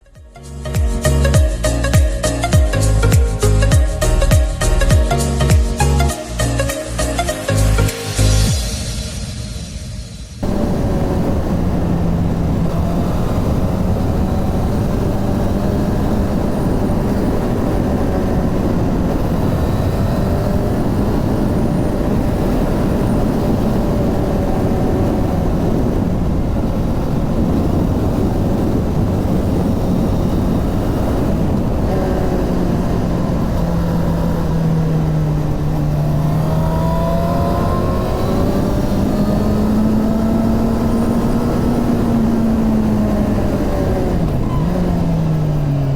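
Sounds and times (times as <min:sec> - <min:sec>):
motorcycle engine running: 0:10.4 - 0:45.9.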